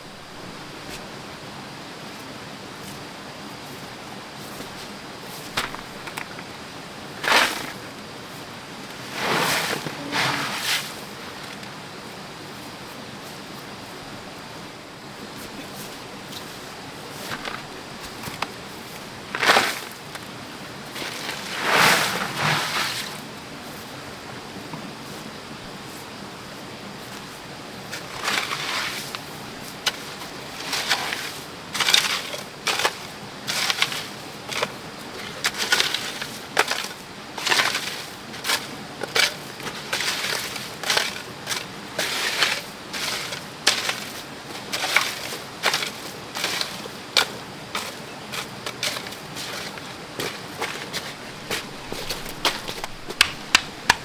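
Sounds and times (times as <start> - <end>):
background hiss: 0.0 - 54.0
sharp scraping strokes: 50.9 - 54.0.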